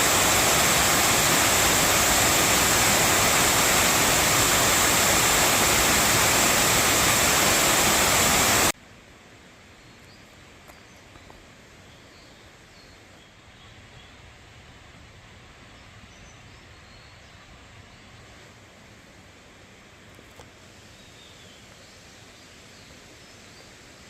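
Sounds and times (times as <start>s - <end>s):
water rushing in mountain stream: 0.0s - 9.2s.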